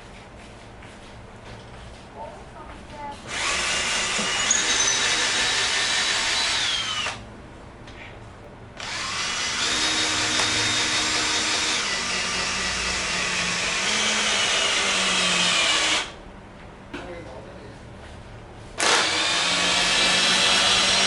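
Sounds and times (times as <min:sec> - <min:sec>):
cordless drill running: 0:03.3 - 0:07.2, 0:08.8 - 0:16.2, 0:18.8 - 0:21.0.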